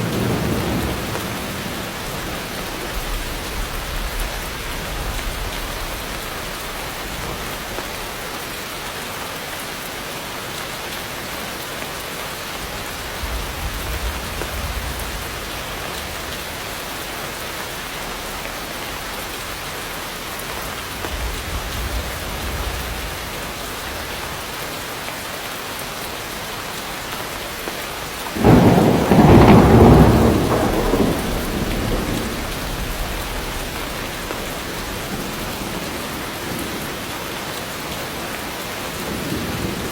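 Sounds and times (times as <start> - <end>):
thunder clap rumbling: 0.0 - 8.1, 12.6 - 17.2, 20.4 - 24.5, 28.3 - 37.0
heavy rain falling: 0.0 - 39.9.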